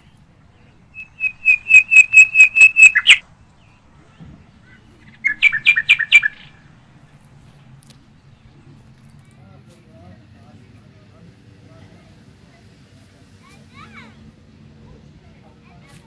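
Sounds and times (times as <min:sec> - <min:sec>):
bird calling quick repeated notes: 0:00.9 - 0:03.2, 0:05.1 - 0:06.6.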